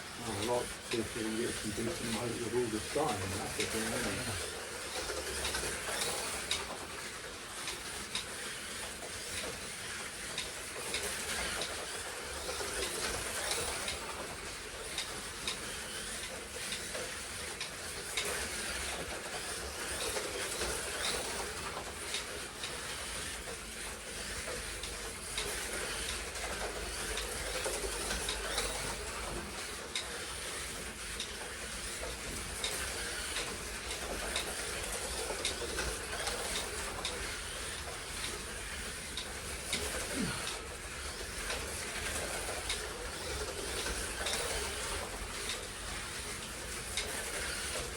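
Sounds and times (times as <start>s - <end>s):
electric motors whining: 0.0s - 10.4s, 30.6s - 47.9s
slot cars clicking on track: 0.1s - 47.9s.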